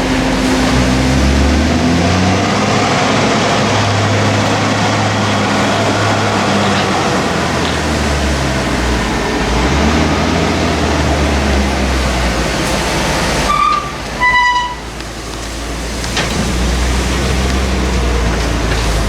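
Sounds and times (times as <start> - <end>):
vehicle engine low rumble: 0.0 - 19.0
horn toots: 13.2 - 15.0.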